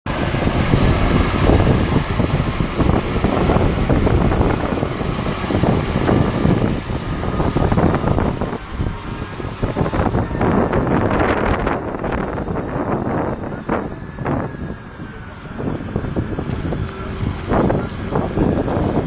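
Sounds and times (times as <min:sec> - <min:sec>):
diesel tractor engine under load: 0:00.0 - 0:19.0
wind buffeting microphone: 0:00.0 - 0:19.0.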